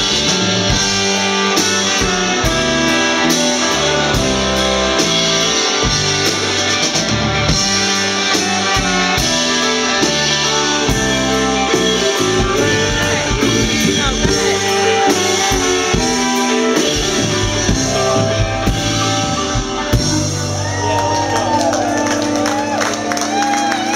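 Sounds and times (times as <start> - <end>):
drum kit: 0.0 - 23.9
electric guitar: 0.0 - 23.9
live soul band playing: 0.0 - 23.9
person singing: 10.1 - 19.5.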